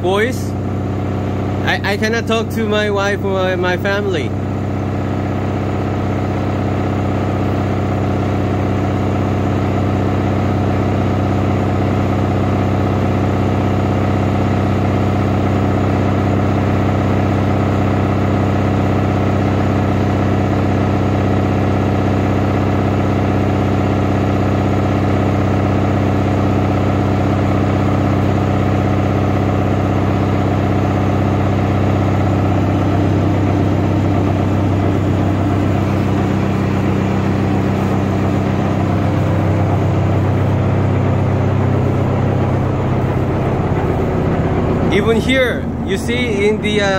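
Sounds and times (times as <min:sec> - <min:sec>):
washing machine droning: 0:00.0 - 0:46.9.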